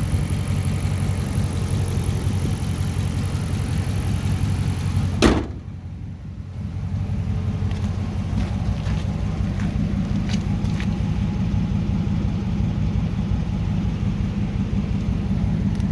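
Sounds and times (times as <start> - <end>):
car engine idling: 0.0 - 15.9
loud engine burst: 5.0 - 5.8.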